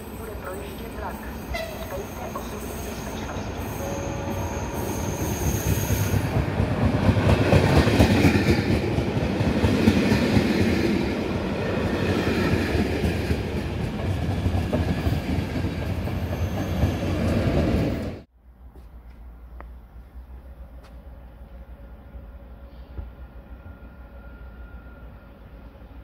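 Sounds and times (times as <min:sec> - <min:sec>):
train coaches rumbling on rails: 0:00.0 - 0:18.3.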